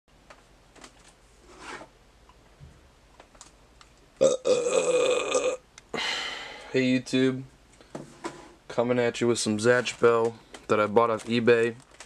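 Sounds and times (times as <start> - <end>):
person burping: 4.2 - 5.6.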